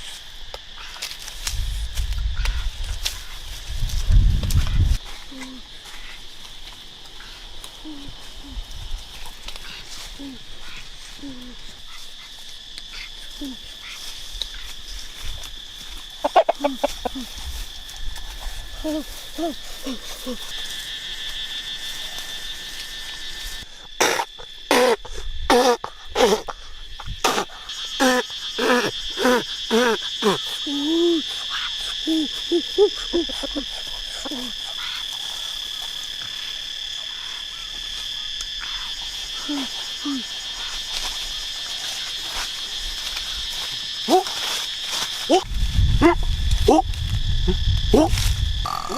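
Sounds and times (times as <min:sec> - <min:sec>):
high insect drone: 0:00.0 - 0:48.9.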